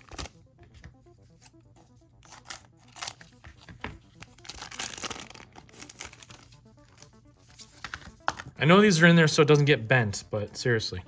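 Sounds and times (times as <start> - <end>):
foil wrapper crinkling: 4.2 - 7.7.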